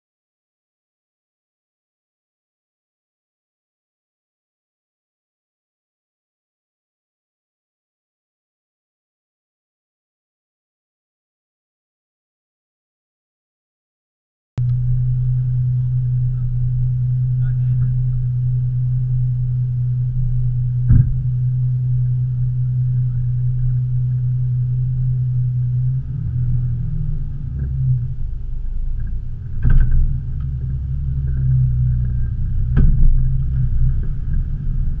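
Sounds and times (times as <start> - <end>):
engine idling and pulling away: 14.6 - 35.0
sharp knocks: 20.9 - 21.2.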